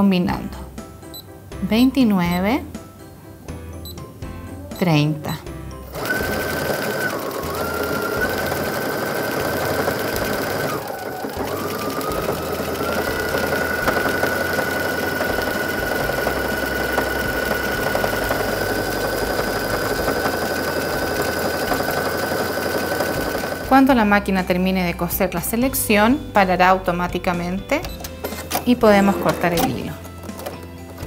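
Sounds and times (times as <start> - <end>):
sewing machine motor whine: 5.9 - 23.8.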